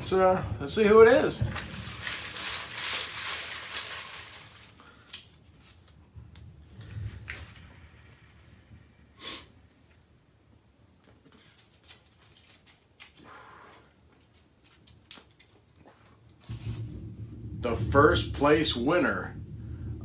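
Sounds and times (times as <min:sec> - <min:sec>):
paper rustling: 0:01.5 - 0:06.0, 0:11.0 - 0:13.2.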